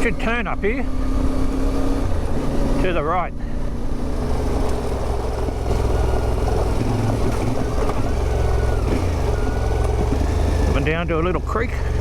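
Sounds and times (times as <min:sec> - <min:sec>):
motorcycle engine riding: 0:00.0 - 0:12.0.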